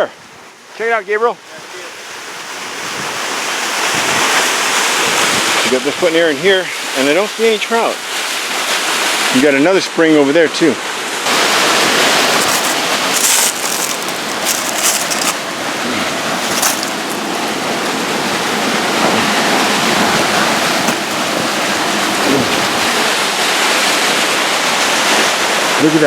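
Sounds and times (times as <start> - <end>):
waterfall pouring into pool: 11.2 - 26.0.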